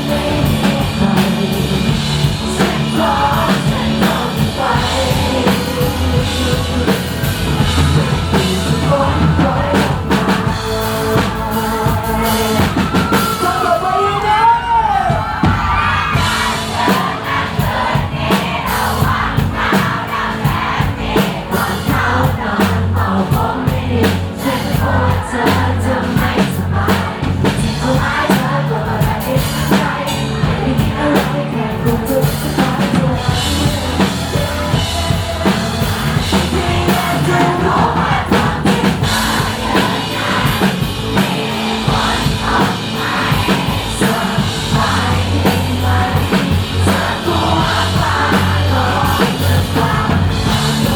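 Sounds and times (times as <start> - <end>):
bass: 0.0 - 50.9
drum kit beat: 0.0 - 50.9
sung vocals: 0.0 - 50.9
synthesizer: 0.0 - 50.9.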